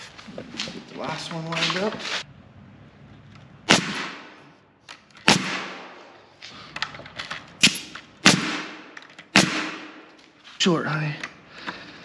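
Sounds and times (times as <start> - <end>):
hammer striking nails into wood: 7.6 - 10.0.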